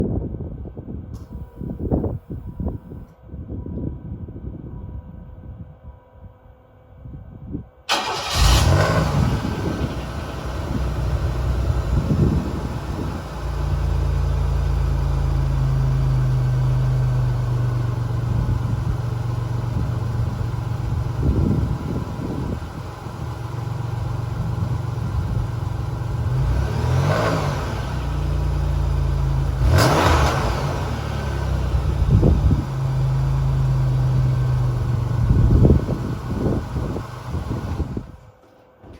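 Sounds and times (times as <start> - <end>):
car exhaust idling: 7.9 - 38.2.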